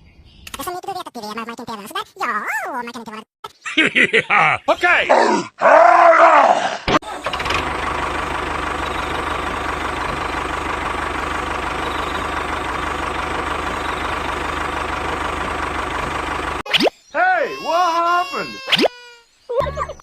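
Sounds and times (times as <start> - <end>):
motor humming: 7.0 - 16.6.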